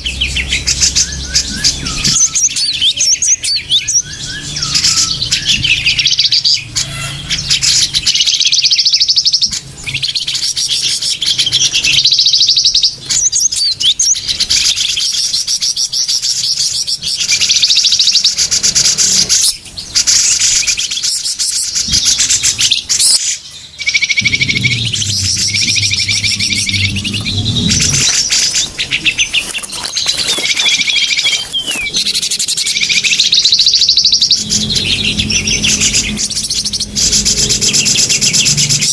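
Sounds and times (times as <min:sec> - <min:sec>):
small birds twittering and chirping: 0:00.0 - 0:38.9.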